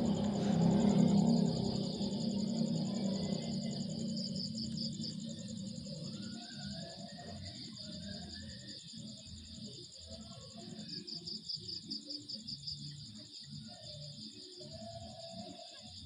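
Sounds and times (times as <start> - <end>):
low background rumble: 0.0 - 6.8
crickets trilling: 0.0 - 16.0.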